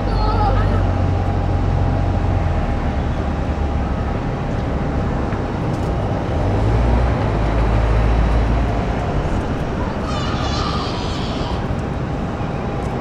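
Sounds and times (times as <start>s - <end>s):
jet engine rumble with hiss: 7.1s - 13.0s.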